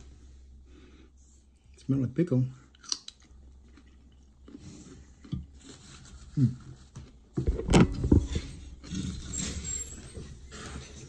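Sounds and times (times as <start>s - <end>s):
crunchy pickle chewing: 2.7s - 5.9s.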